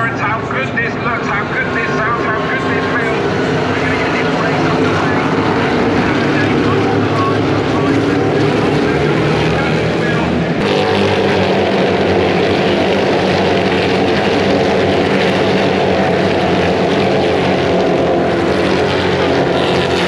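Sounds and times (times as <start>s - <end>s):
race engines rumbling: 0.0s - 20.0s.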